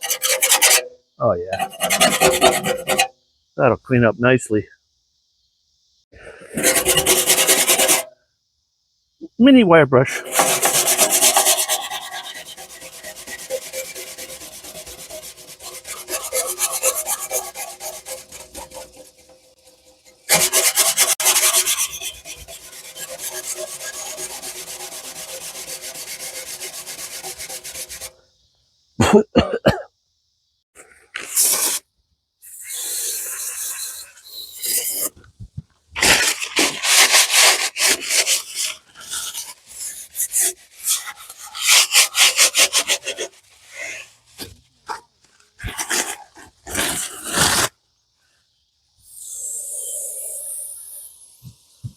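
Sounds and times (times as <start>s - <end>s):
wire brush scrubbing steel: 0.0s - 3.1s, 6.4s - 8.1s, 10.1s - 28.2s, 31.2s - 31.8s, 32.4s - 35.2s, 36.0s - 45.0s, 45.6s - 47.7s.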